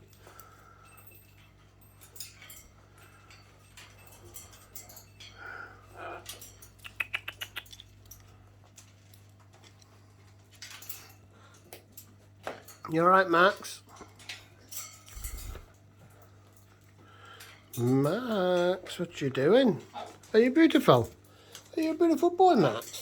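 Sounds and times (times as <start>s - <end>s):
parrots chirping and clicking: 0.1s - 15.8s.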